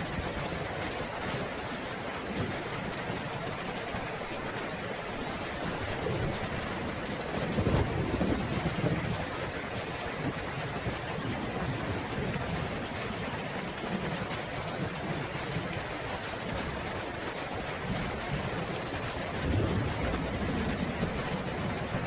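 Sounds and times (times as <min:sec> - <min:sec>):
steady rain: 0:00.0 - 0:22.0
low roll of thunder: 0:05.7 - 0:09.4, 0:19.3 - 0:22.0.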